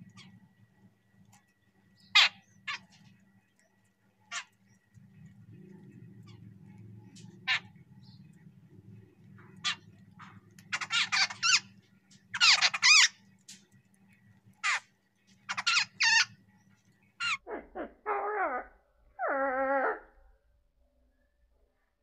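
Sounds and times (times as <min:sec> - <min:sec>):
birds squeaky high calls: 0:02.0 - 0:03.1, 0:04.3 - 0:04.8, 0:06.2 - 0:08.4, 0:09.4 - 0:13.3, 0:14.6 - 0:16.4, 0:17.1 - 0:17.6
birds drawn-out lower calls: 0:04.2 - 0:13.4.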